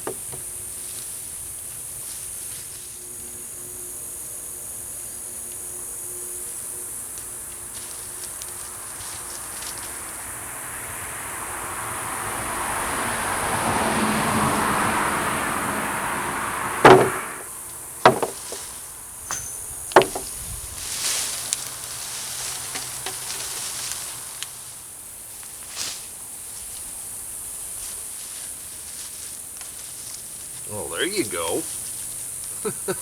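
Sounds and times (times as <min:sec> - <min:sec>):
sharp knocks: 0:00.0 - 0:00.5, 0:16.8 - 0:17.5, 0:18.1 - 0:18.6, 0:19.3 - 0:20.3
rustling of mulch dug by hand: 0:18.1 - 0:27.0.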